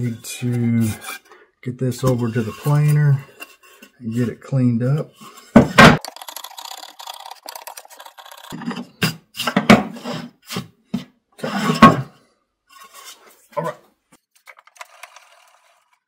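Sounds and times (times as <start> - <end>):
scrape on wood: 0.0 - 5.7, 8.4 - 12.1, 12.7 - 13.5.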